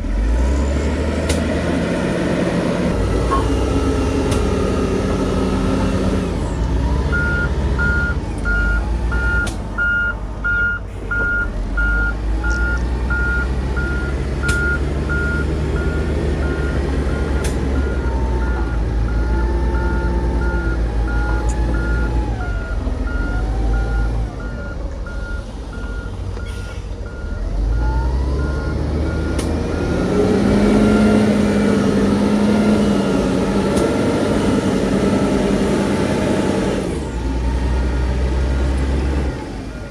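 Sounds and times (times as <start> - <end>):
diesel engine running: 0.0 - 39.9
reversing alarm beeping: 4.7 - 33.2.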